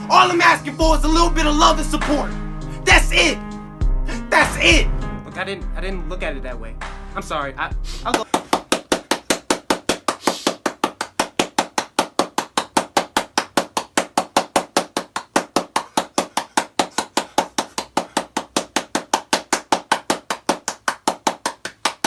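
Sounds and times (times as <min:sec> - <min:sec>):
rapid sharp knocks: 0:08.2 - 0:22.0.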